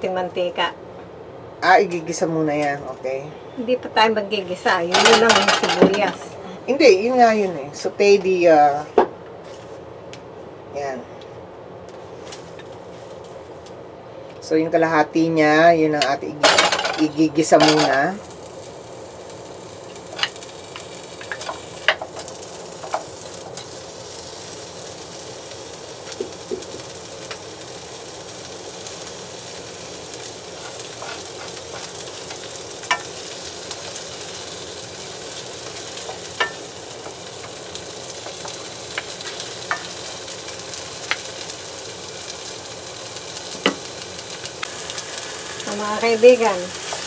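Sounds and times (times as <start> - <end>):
onions sizzling in hot oil: 3.5 - 6.3, 16.1 - 47.0.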